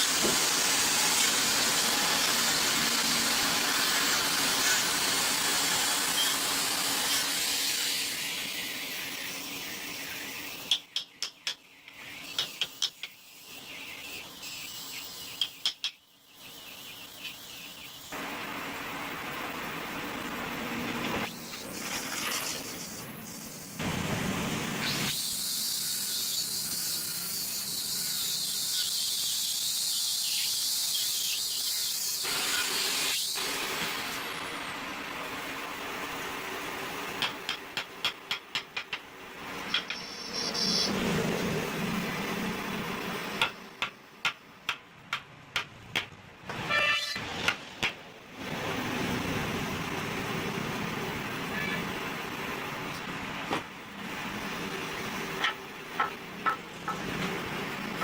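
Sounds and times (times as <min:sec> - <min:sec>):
steady high hiss: 0:00.0 - 0:44.8
short squeal: 0:39.9 - 0:41.1, 0:46.6 - 0:47.3.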